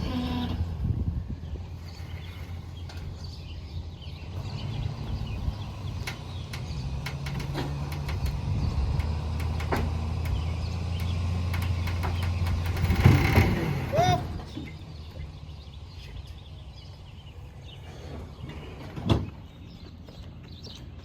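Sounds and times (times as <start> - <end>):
vehicle engine running: 0.2 - 18.4
sharp clicks and clanks: 6.0 - 13.8.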